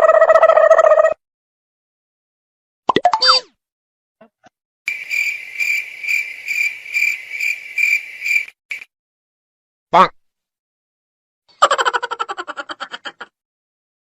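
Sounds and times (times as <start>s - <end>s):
cricket chirping: 4.9s - 8.9s.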